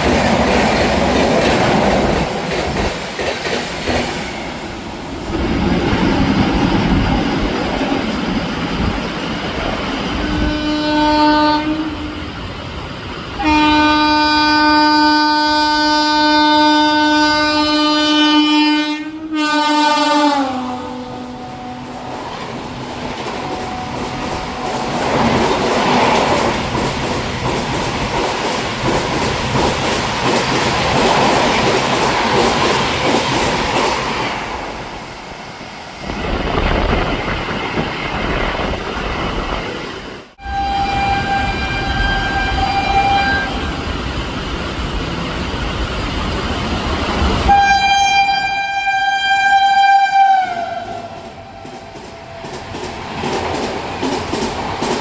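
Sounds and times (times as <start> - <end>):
train rushing past: 0.0 - 55.0
locomotive horn blasts: 10.2 - 12.2, 13.4 - 22.1, 40.4 - 43.7, 47.5 - 51.6.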